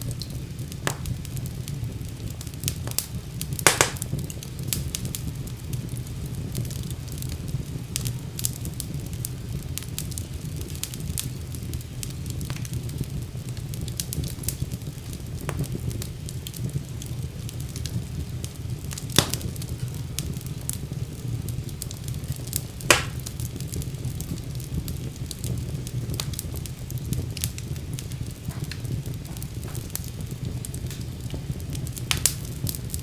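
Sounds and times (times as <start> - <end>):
fire crackling: 0.0 - 33.0
fire flames rumbling: 0.0 - 33.0
loud fire pops: 0.0 - 33.0.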